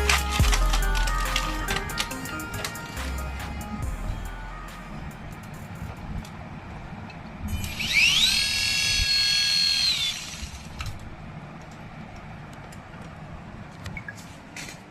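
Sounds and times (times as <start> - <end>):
toy motor whining: 7.5 - 10.7.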